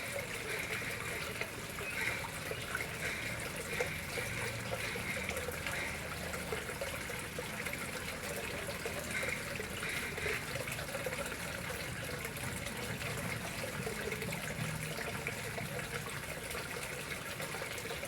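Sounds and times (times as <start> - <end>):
water splashing into a pond: 0.0 - 18.0.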